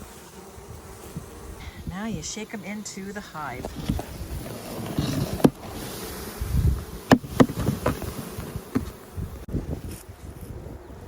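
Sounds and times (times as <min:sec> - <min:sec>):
bees buzzing: 0:00.0 - 0:11.0
knocks on box: 0:07.1 - 0:08.1.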